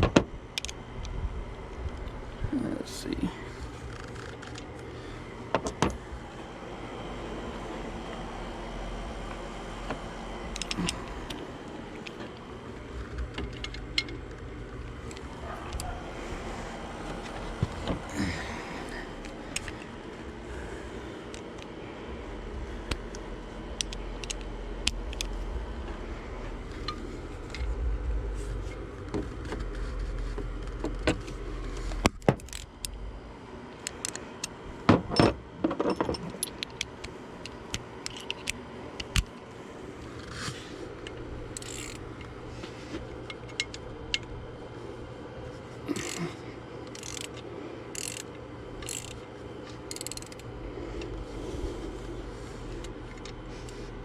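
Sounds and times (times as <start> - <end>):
ratchet wrench clicking: 10.5 - 12.2, 19.2 - 19.9, 22.9 - 25.4, 32.0 - 33.0, 41.0 - 42.2, 46.0 - 46.2, 46.8 - 50.5
metallic clicks and clinks: 48.0 - 49.2, 49.9 - 50.5.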